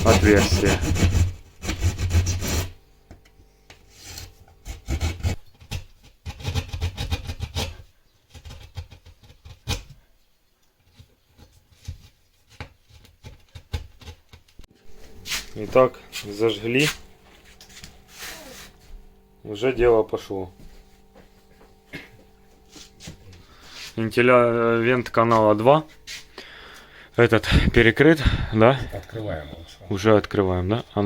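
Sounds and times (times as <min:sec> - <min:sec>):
hand saw rasping through plasterboard: 0:00.0 - 0:02.8, 0:04.0 - 0:09.9.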